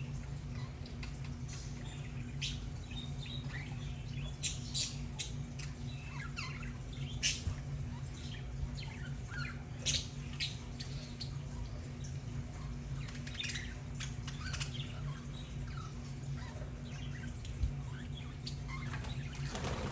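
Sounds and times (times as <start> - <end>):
budgerigars chirping and chattering: 0.2 - 19.9.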